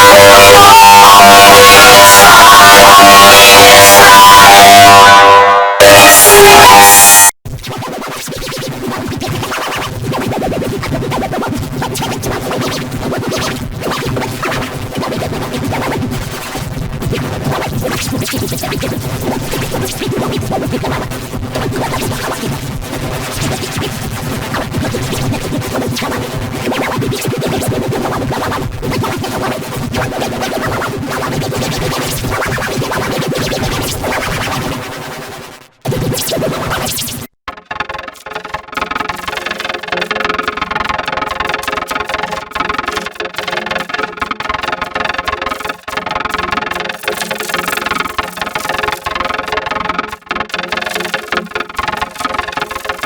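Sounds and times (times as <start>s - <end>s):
warped electronic music: 0.0s - 7.3s.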